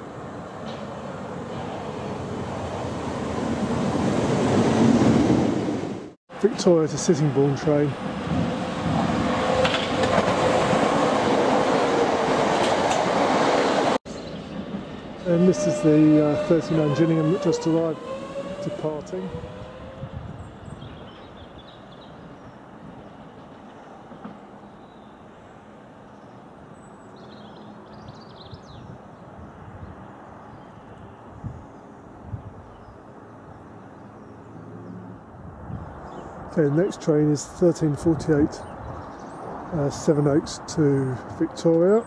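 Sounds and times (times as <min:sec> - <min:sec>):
train hum: 0:00.0 - 0:26.7
train wheels rushing on rail: 0:00.2 - 0:21.1
wheels clicking over rail joints: 0:08.2 - 0:11.2.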